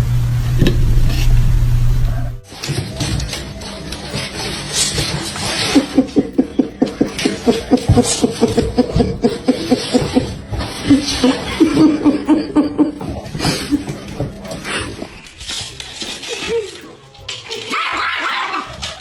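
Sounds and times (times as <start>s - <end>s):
person laughing hard: 5.5s - 15.1s.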